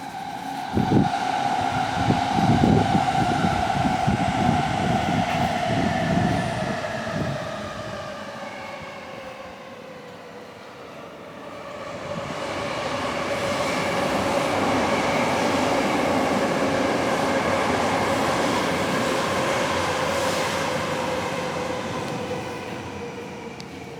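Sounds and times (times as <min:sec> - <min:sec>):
train motor whine: 0:00.0 - 0:09.3
electric train passing: 0:00.0 - 0:23.9.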